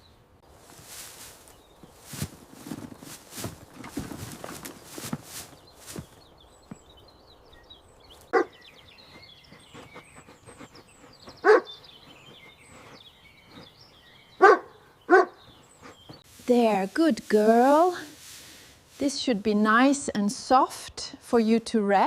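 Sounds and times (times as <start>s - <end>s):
small birds chirping: 0.0s - 21.7s
dog barking: 8.3s - 8.6s, 11.4s - 11.7s, 14.4s - 15.4s.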